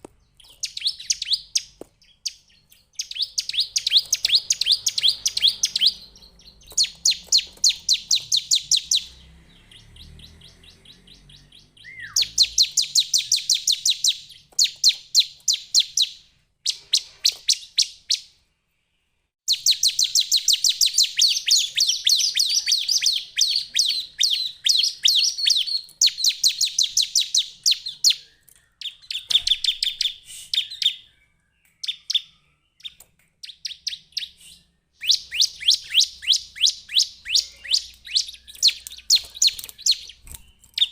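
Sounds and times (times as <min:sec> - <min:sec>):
bird singing rapid sharp chirps: 0:00.2 - 0:18.4, 0:19.5 - 0:40.9.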